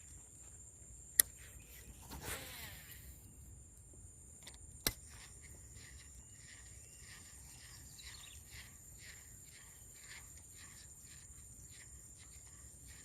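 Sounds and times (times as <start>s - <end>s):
sharp click: 1.1s - 1.4s
high-pitched insect drone: 5.0s - 13.0s.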